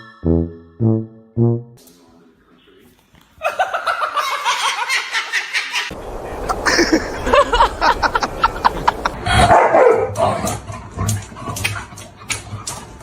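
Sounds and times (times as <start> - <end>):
dog barking: 9.4 - 10.4.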